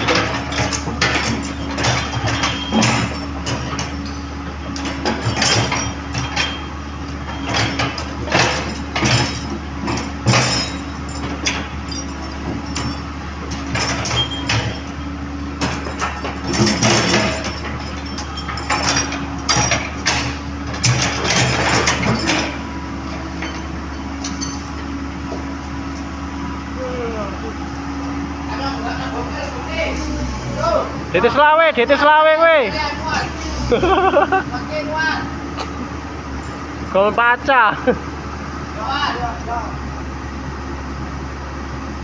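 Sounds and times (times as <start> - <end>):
metallic clanks and knocks: 0.0 - 26.1
excavator diesel engine idling: 0.0 - 42.0.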